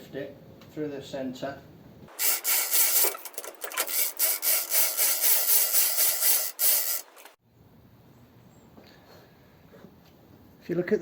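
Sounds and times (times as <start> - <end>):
lifting gear rasping strokes: 2.1 - 7.4.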